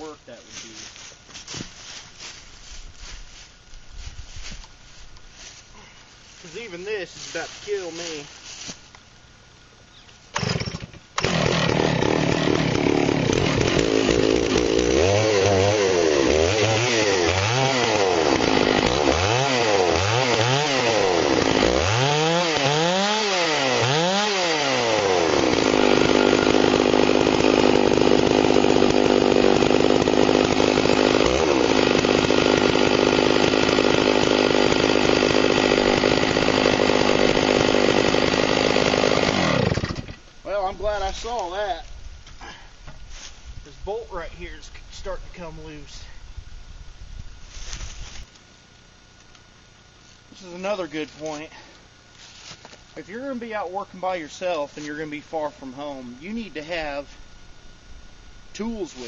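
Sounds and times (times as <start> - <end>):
chainsaw revving and cutting: 10.4 - 40.2.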